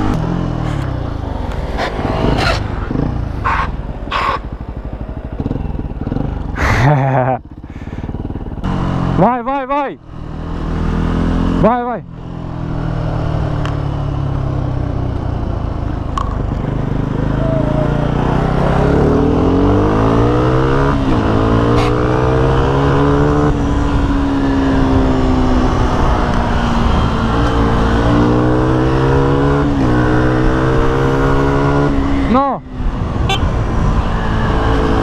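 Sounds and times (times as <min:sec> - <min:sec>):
motorbike engine accelerating: 0:00.0 - 0:35.0.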